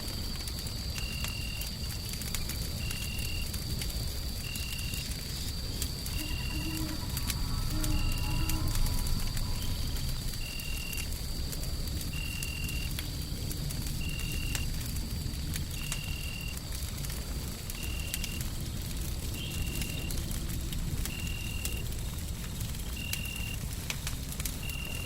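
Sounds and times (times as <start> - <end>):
wood fire crackling and popping: 0.0 - 25.0
short high-pitched call: 6.1 - 11.0.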